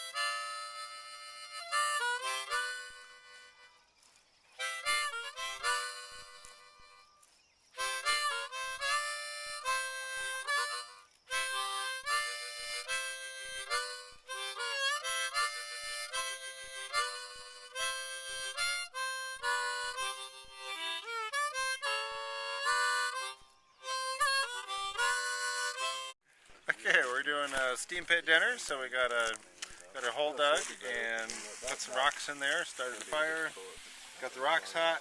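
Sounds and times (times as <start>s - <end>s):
harmonica playing: 0.0s - 26.2s, 26.8s - 35.0s.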